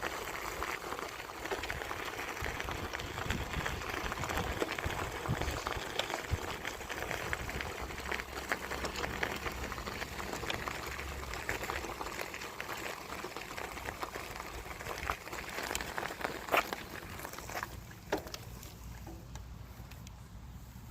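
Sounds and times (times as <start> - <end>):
bicycle clicks and rattles: 0.0 - 20.3.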